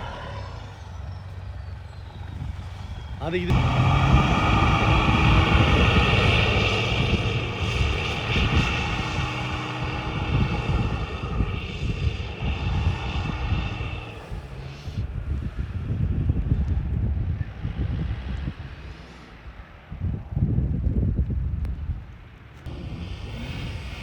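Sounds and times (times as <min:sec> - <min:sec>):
pickup truck engine driving: 0:00.0 - 0:15.8, 0:22.6 - 0:24.0.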